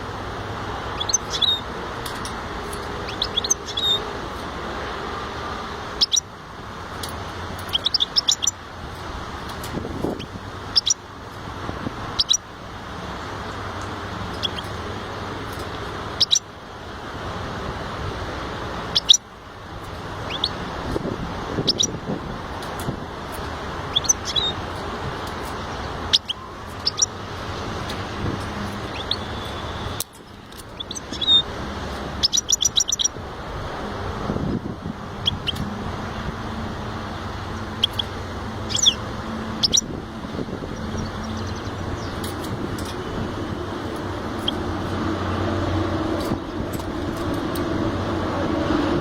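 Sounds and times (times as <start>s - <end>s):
finch chirping: 1.0s - 1.7s, 3.0s - 4.1s, 5.9s - 6.3s, 7.6s - 8.6s, 10.0s - 11.0s, 12.1s - 12.5s, 14.3s - 14.8s, 15.5s - 16.5s, 18.9s - 19.2s, 20.1s - 22.0s, 22.6s - 33.2s, 35.2s - 35.6s, 37.6s - 40.0s, 40.7s - 45.4s.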